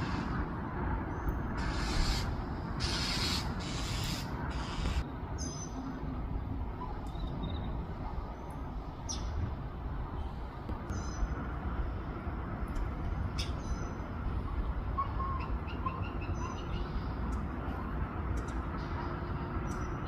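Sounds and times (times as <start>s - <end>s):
rushing hiss: 1.6s - 5.0s.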